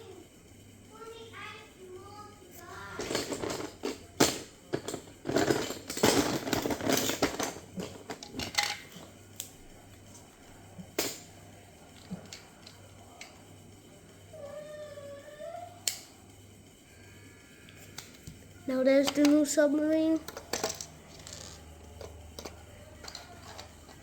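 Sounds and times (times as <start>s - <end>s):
plastic bricks clattering and clicking: 20.1s - 24.0s.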